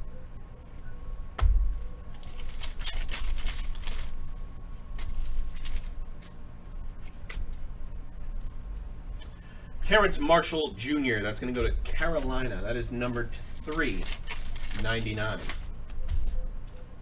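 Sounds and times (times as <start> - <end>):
dull thump: 1.4 - 1.8
wrappers crinkling: 1.8 - 7.7, 11.3 - 16.8
cards handled on a table: 13.1 - 16.9.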